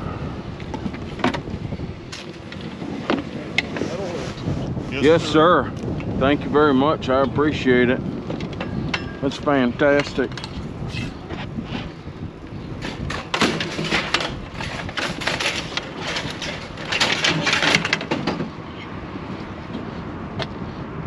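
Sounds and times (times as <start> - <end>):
hard objects clattering: 12.8 - 18.6.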